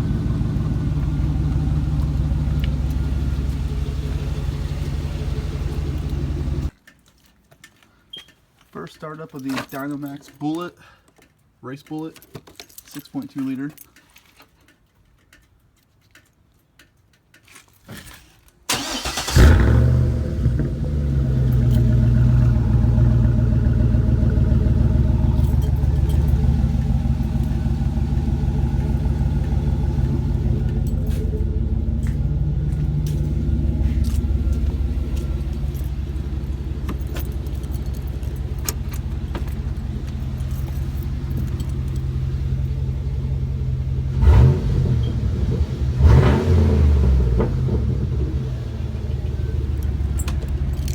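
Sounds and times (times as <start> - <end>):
engine idling: 0.0 - 6.8, 18.7 - 50.9
engine cranking and starting: 0.0 - 6.9, 18.7 - 50.9.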